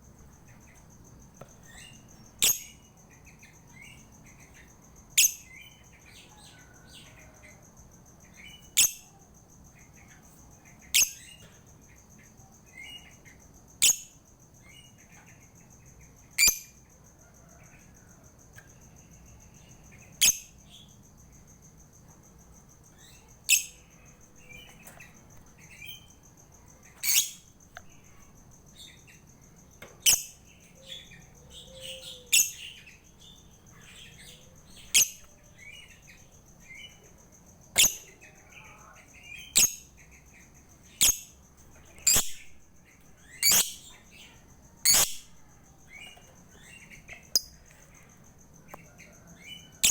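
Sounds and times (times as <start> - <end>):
soft bird twittering: 1.4 - 6.8, 22.9 - 29.2, 37.8 - 45.3, 49.6 - 49.9
bird shrill chirps: 1.6 - 2.9, 8.5 - 9.1, 16.4 - 16.8, 27.0 - 27.5, 30.0 - 36.1, 37.8 - 40.2, 42.0 - 42.6, 43.2 - 45.3, 49.7 - 49.9.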